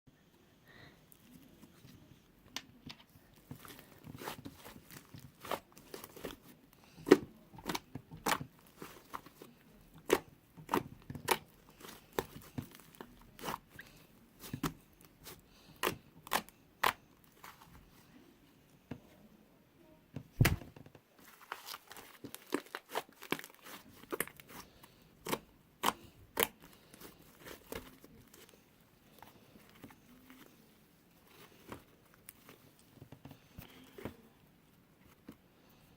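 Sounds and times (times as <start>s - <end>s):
heavy thump: 20.4s - 20.7s.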